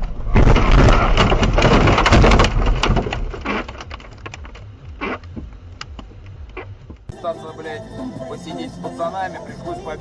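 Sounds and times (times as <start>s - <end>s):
debris clicks and rattles: 0.0s - 4.7s
car collision crunching impact: 0.0s - 7.1s.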